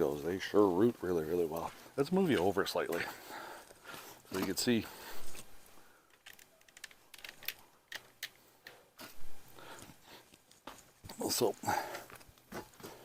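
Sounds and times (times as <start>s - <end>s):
light clicks and crackles: 5.3s - 9.2s.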